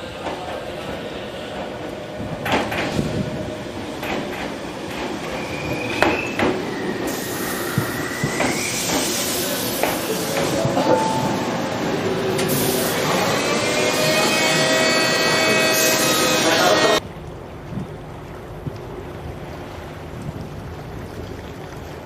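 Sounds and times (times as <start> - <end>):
train running on track: 0.0 - 17.0
hiss: 6.9 - 10.0.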